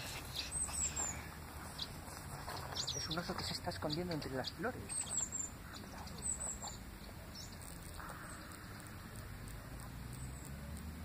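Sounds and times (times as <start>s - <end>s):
high bird chirps: 0.2s - 9.2s
low steady rumble: 5.3s - 11.0s.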